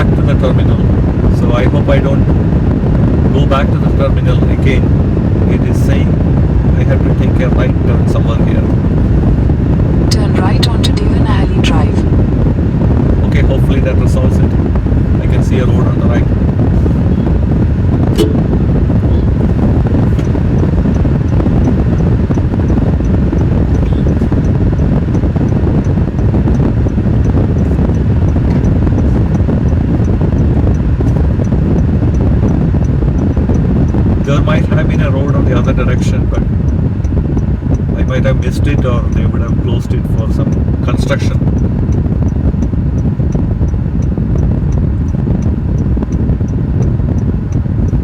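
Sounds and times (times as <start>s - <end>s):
road and wind rumble: 0.0s - 48.0s
turn signal ticking: 18.0s - 39.8s, 40.4s - 48.0s.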